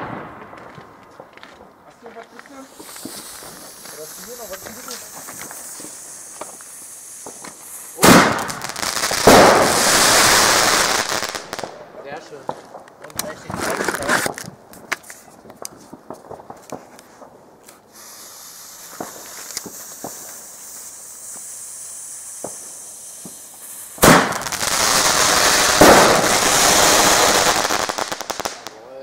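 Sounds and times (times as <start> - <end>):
firework bang: 0.0 - 1.3, 2.7 - 11.8, 17.9 - 21.5, 22.2 - 28.7
firework crackle: 0.0 - 29.0
fireworks popping: 0.0 - 29.0
faint steady hiss: 1.0 - 29.0.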